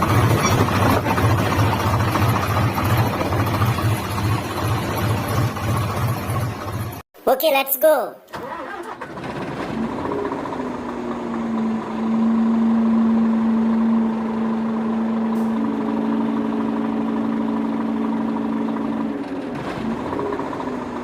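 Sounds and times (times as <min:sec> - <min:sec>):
higher motor tone: 0:10.6 - 0:19.4.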